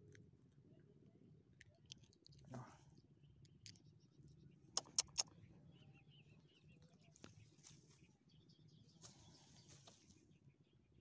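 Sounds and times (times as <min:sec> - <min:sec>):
faint bird chirps: 0:02.9 - 0:11.0
sharp clicks: 0:04.8 - 0:05.3.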